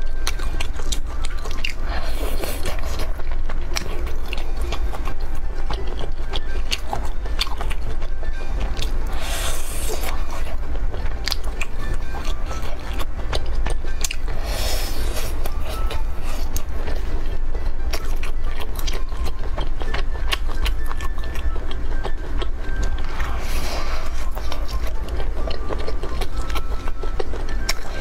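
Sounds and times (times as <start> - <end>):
chewing and crunching: 0.0 - 28.0
steady low hum: 0.0 - 28.0
breathy hiss: 23.2 - 24.4.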